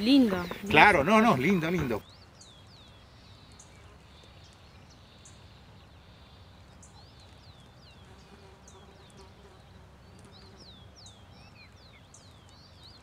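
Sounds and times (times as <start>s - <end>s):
bird chirps: 0.0s - 13.0s
low background noise: 0.0s - 13.0s.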